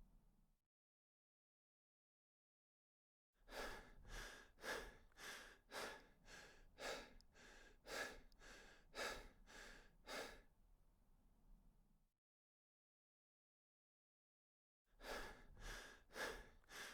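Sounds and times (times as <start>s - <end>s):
person breathing fast: 3.5s - 10.4s, 15.0s - 16.9s.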